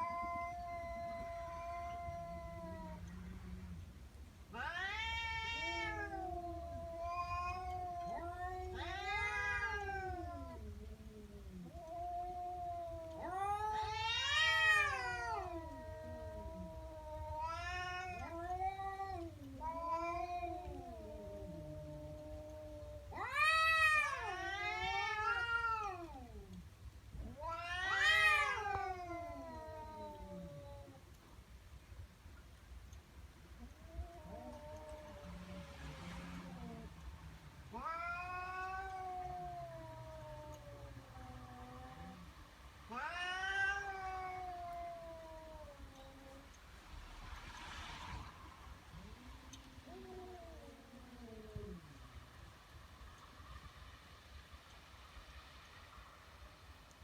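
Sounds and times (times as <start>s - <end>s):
cat yowling: 0.0s - 3.1s, 4.5s - 10.8s, 11.6s - 26.6s, 27.2s - 31.0s, 37.7s - 42.3s, 42.9s - 46.5s
cat moaning low: 0.0s - 3.9s, 4.5s - 31.2s, 33.6s - 52.4s.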